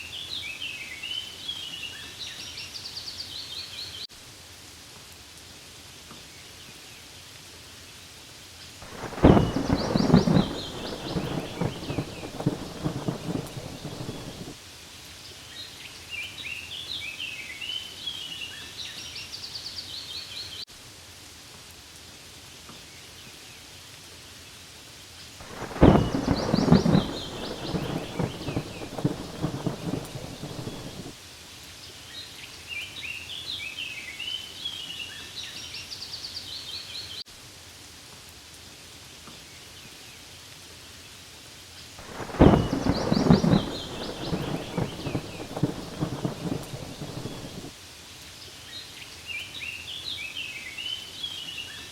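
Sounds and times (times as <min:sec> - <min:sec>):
steady rainfall: 0:00.0 - 0:51.9
rolling thunder: 0:08.8 - 0:14.6, 0:25.4 - 0:31.2, 0:42.0 - 0:47.7.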